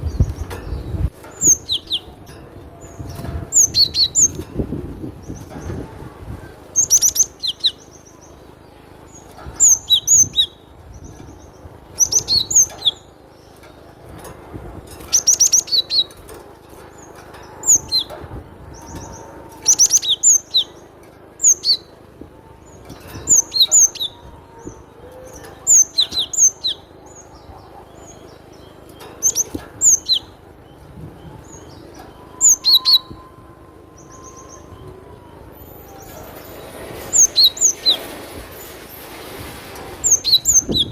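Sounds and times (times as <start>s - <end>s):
bird singing sharp high notes: 28.0s - 38.2s.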